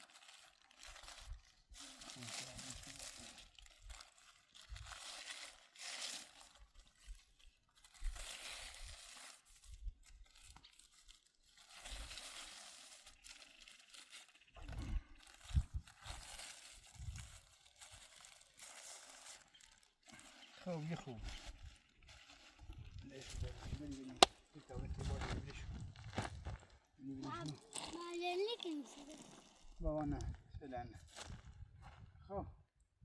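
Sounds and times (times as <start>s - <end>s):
plastic bag crinkling: 0.0s - 24.3s.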